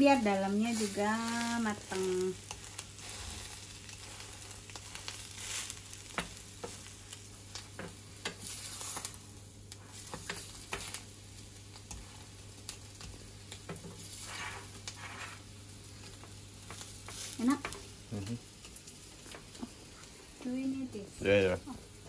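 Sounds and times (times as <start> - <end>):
omelette sizzling in oil: 0.0 - 22.0
wooden spatula scraping a pan: 13.7 - 15.5.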